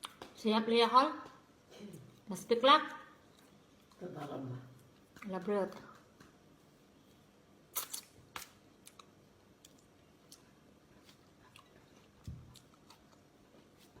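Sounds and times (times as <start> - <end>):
person eating crunches: 7.7 - 14.0.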